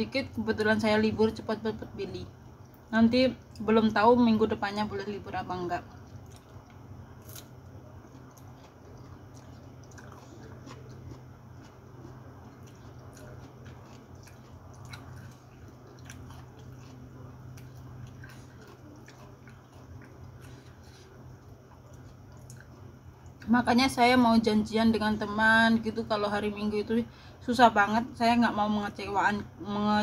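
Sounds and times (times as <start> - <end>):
low steady hum: 0.0 - 30.0
person chewing food: 5.8 - 23.5.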